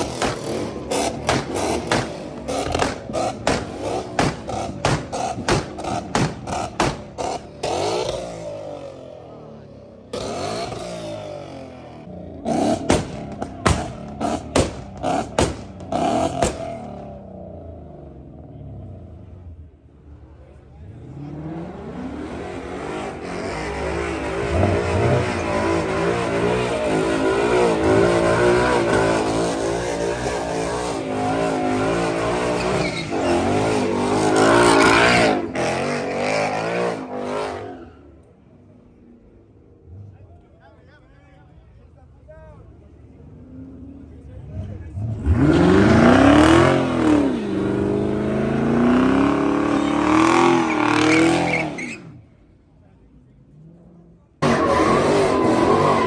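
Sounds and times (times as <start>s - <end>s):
exhaust pops and cracks: 0.0s - 7.5s, 12.7s - 17.0s
car engine revving: 0.0s - 40.8s, 42.8s - 52.5s, 53.1s - 56.0s.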